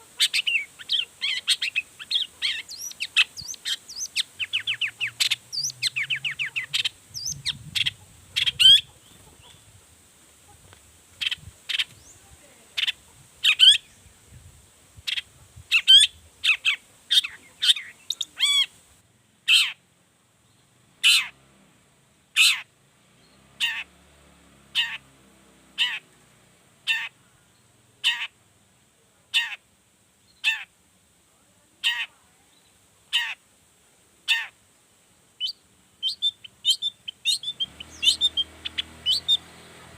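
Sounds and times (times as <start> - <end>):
bird singing trills and chirps: 0.0 - 9.8, 11.2 - 14.2, 15.1 - 18.7, 35.4 - 39.9.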